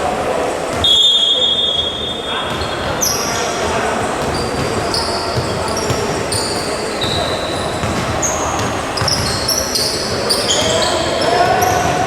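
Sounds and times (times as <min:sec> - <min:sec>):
crowd chatter: 0:00.0 - 0:12.0
sneakers squeaking on court: 0:00.7 - 0:12.0
basketball bouncing: 0:04.2 - 0:12.0.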